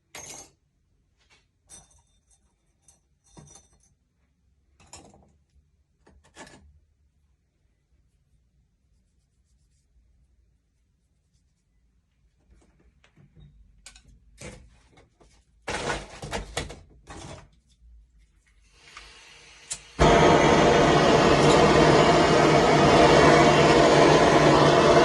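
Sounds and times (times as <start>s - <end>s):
objects knocking and clattering: 1.7s - 4.0s, 4.7s - 6.8s
hiss: 18.7s - 25.0s.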